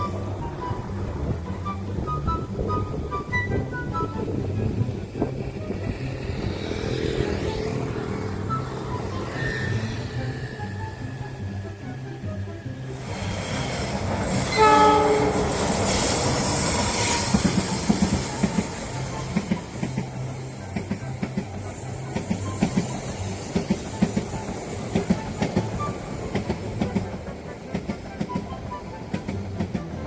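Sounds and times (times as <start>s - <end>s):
low train rumble: 0.0s - 30.0s
train wheels clicking over rail joints: 12.9s - 30.0s.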